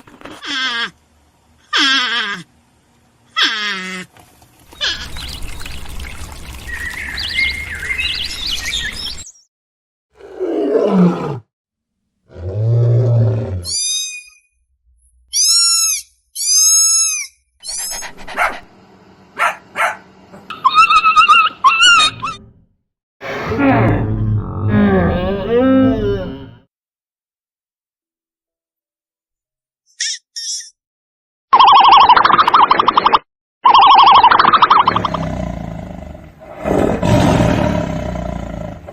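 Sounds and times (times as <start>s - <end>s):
animal calls: 1.7s - 2.5s, 3.3s - 4.1s, 4.7s - 5.7s, 19.4s - 22.5s
high bird-like calls: 4.7s - 9.4s
chirping: 4.7s - 9.5s.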